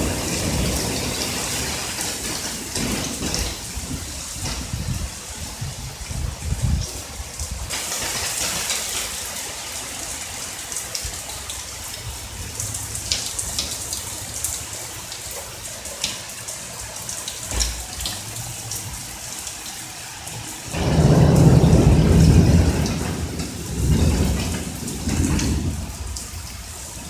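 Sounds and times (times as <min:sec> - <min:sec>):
faint low thunder rumble: 0:00.0 - 0:07.7, 0:20.7 - 0:27.0
steady rain falling: 0:00.0 - 0:27.0
sharp drips: 0:05.7 - 0:27.0.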